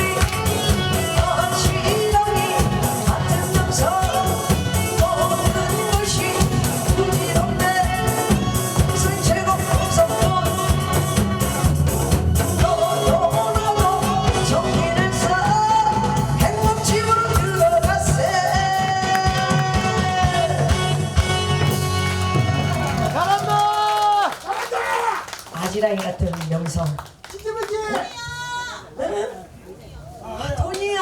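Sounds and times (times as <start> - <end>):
person singing live: 0.0 - 21.7
amplified backing music with beat: 0.0 - 23.3.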